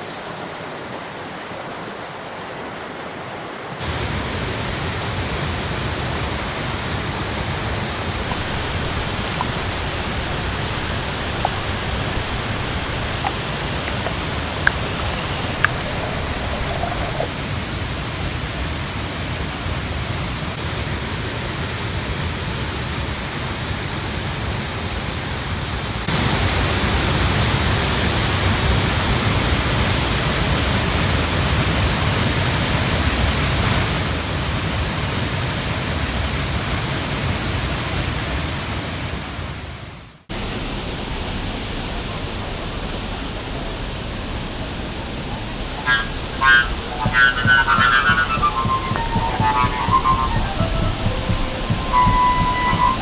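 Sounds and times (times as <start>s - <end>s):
waterfall rushing: 0.0s - 24.3s, 40.4s - 53.0s.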